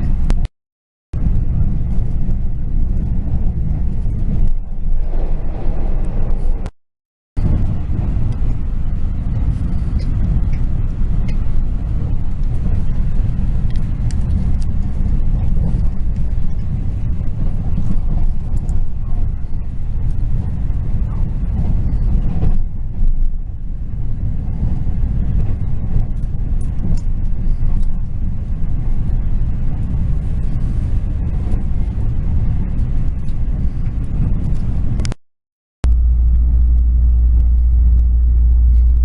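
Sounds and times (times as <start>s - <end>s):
train rumble inside carriage: 0.0s - 0.5s, 1.2s - 6.7s, 7.4s - 35.2s, 35.8s - 39.0s.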